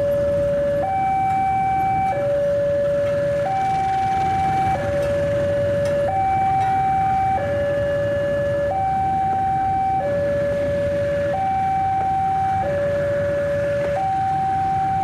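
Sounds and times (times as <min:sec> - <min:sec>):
two-tone crossing alarm: 0:00.0 - 0:15.0.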